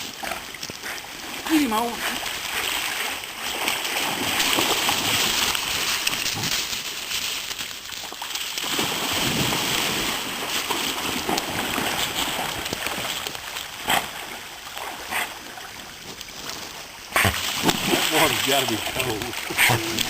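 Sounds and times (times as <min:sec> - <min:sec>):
stream flowing: 0:00.0 - 0:20.0
water splashing and sloshing: 0:00.0 - 0:20.0.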